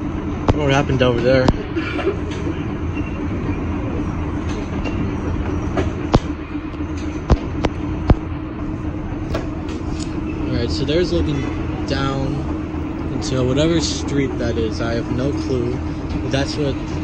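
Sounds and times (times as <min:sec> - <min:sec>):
streetcar rumble and hum: 0:00.0 - 0:17.0
sharp clicks and knocks: 0:04.4 - 0:08.3.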